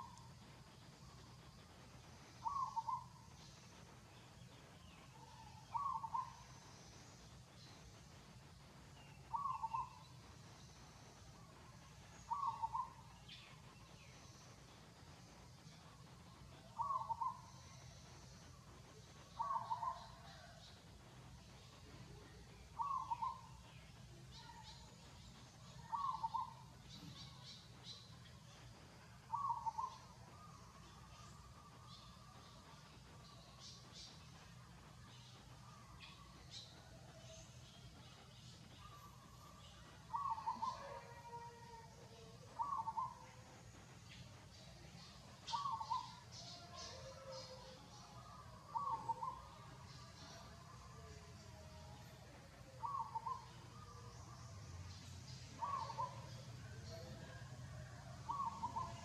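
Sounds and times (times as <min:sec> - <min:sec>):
faint low hum: 0:00.0 - 0:59.0
bird calling: 0:02.4 - 0:03.3, 0:05.7 - 0:06.4, 0:12.2 - 0:13.0, 0:19.4 - 0:20.5, 0:22.8 - 0:23.5, 0:29.3 - 0:30.5, 0:40.1 - 0:41.4, 0:42.6 - 0:43.3, 0:45.5 - 0:46.2, 0:55.6 - 0:56.4.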